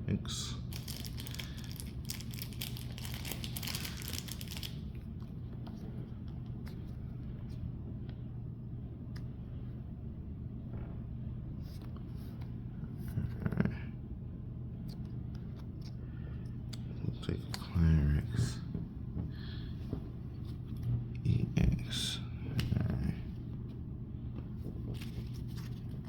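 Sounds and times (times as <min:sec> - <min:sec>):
steady low hum: 0:00.0 - 0:26.0
foil wrapper tearing and crinkling: 0:00.7 - 0:04.8
cards being handled: 0:00.7 - 0:07.6, 0:24.4 - 0:26.0.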